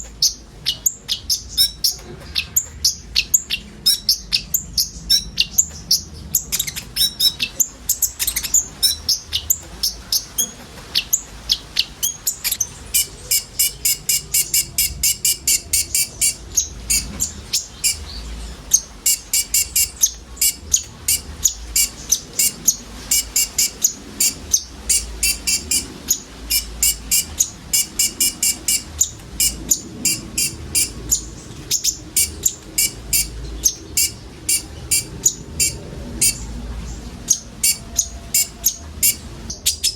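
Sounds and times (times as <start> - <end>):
bird singing high chirps: 0.0 - 39.9
buzzy bird trills: 0.0 - 39.9.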